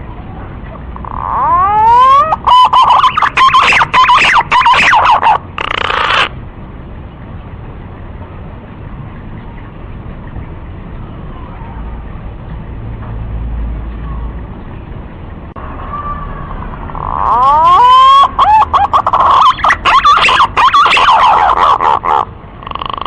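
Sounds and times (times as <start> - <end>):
pigeon whistling call: 1.0 - 6.3, 17.0 - 23.0.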